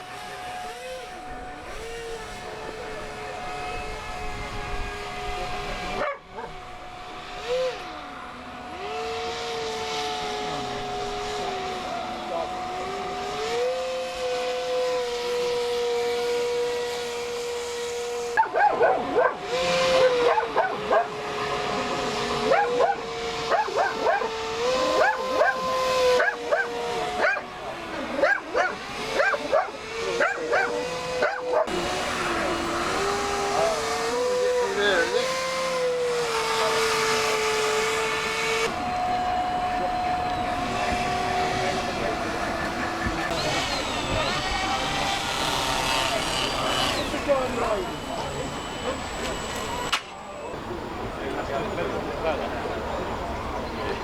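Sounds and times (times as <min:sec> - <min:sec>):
model boat motor whining: 0:00.0 - 0:54.0
dog barking and yelping: 0:06.0 - 0:06.6, 0:18.4 - 0:21.2, 0:22.4 - 0:27.5, 0:28.2 - 0:31.7.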